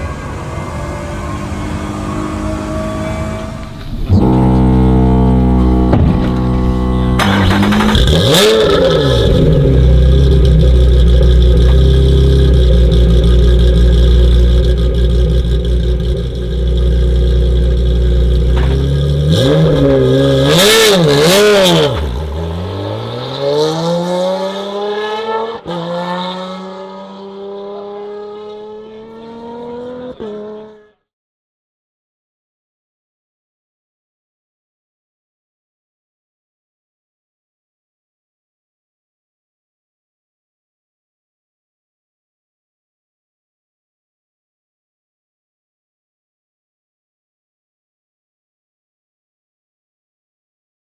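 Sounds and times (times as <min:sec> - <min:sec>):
race car engine revving: 0:00.0 - 0:30.9.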